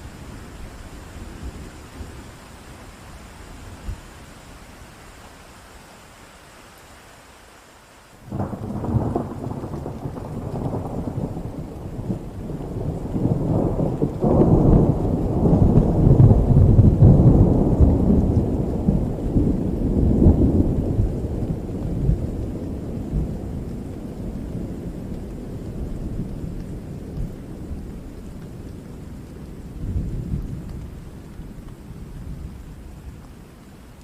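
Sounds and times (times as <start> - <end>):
steady rain: 0.0 - 34.0
thunder rumbling: 8.3 - 33.4.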